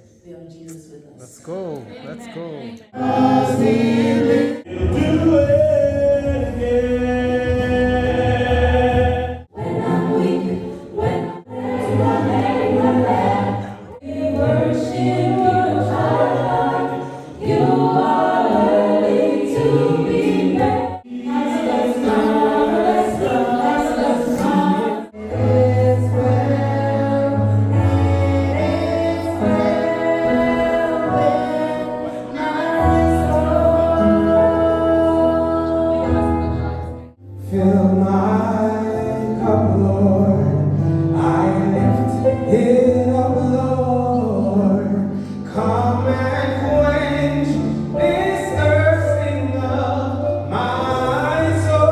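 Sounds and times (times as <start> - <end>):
choir singing in harmony: 2.7 - 51.9
low bass accompaniment: 4.7 - 9.5.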